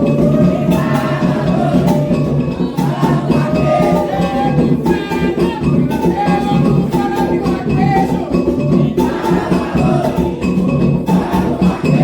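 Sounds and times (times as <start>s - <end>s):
hand drums drumming: 0.0s - 12.0s
sung chant: 0.0s - 12.0s.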